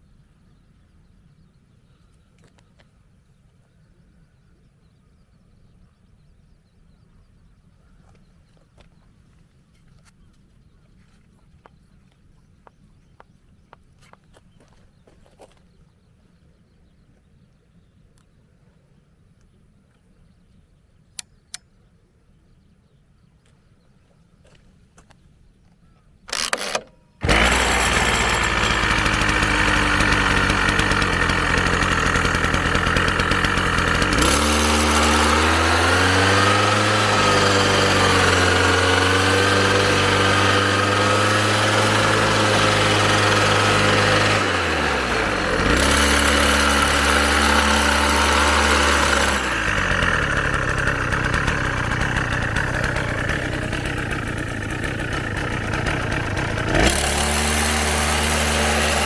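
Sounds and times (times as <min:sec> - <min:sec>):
lawn mower engine running: 0:26.3 - 0:59.0.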